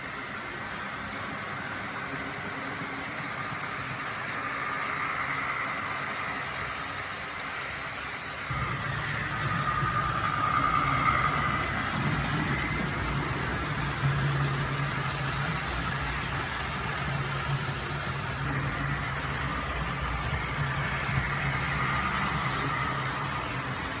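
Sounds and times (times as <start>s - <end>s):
model train running: 0.0s - 24.0s
high whine: 8.5s - 24.0s.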